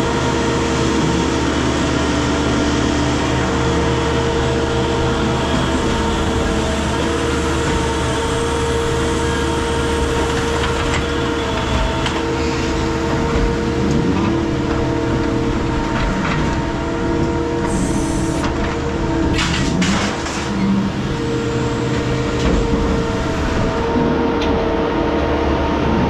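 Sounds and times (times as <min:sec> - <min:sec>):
heavy machinery droning: 0:00.0 - 0:26.0.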